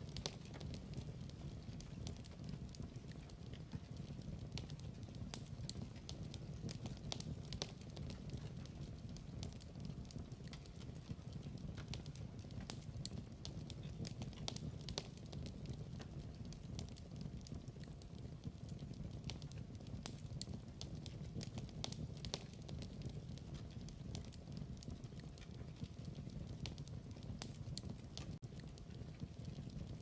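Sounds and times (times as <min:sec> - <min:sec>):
fire popping and crackling: 0:00.0 - 0:30.0
fire rumbling: 0:00.0 - 0:30.0.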